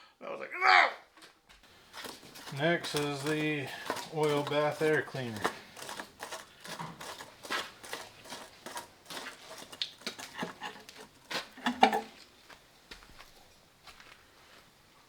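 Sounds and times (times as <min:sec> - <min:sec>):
metal parts clicking and knocking: 0:01.8 - 0:12.2.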